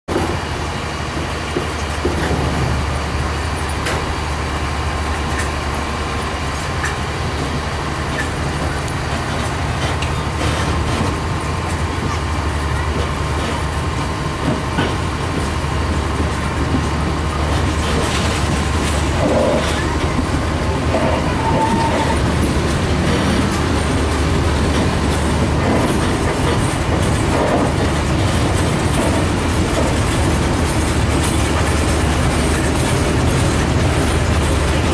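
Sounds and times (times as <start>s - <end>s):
train rumbling on track: 0.1s - 34.9s.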